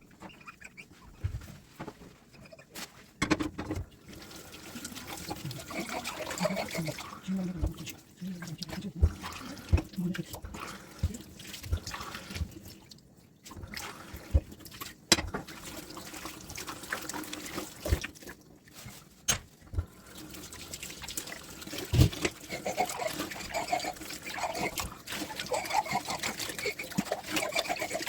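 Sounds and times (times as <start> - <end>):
dishes clinking and knocking: 3.2 - 3.9
water trickling and splashing: 3.8 - 28.0.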